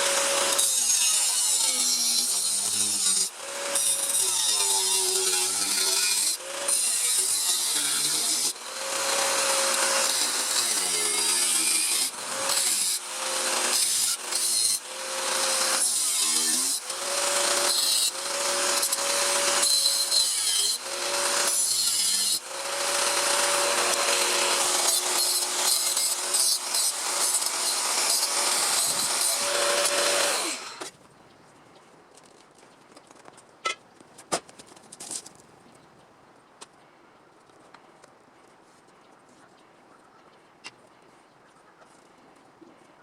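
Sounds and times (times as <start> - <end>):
power tool cutting sheet steel: 0.0 - 30.9.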